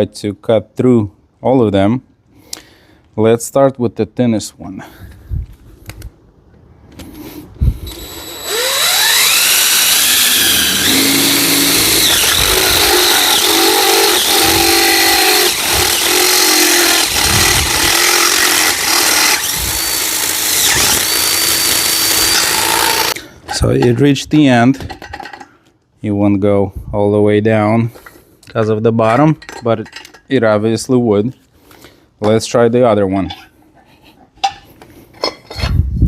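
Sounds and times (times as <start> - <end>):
power drill drilling metal: 7.8 - 23.2.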